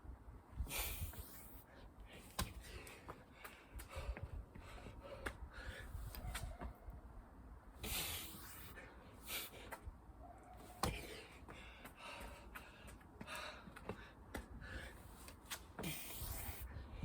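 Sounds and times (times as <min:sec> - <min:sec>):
person breathing hard: 0:00.6 - 0:06.1, 0:10.8 - 0:15.2.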